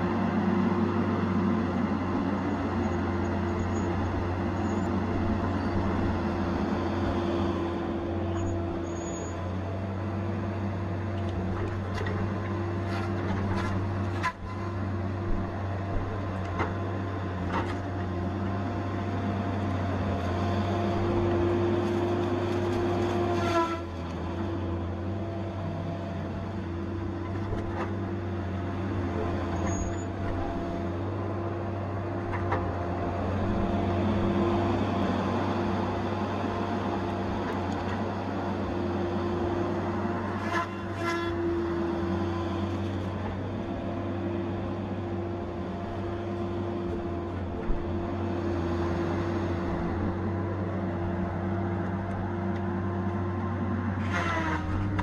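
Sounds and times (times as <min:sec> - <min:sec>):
diesel engine running under load: 0:00.0 - 0:55.0
falling squeal: 0:08.4 - 0:09.4, 0:29.6 - 0:30.1.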